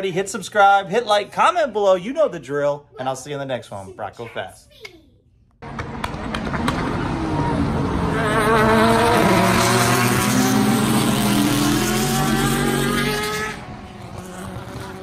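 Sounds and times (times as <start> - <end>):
car engine accelerating: 5.6 - 15.0.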